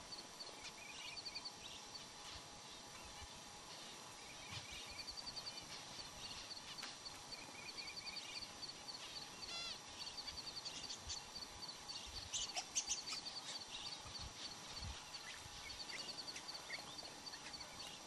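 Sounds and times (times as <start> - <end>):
small birds chirping: 0.0 - 18.0
sharp bird calls: 4.5 - 18.0.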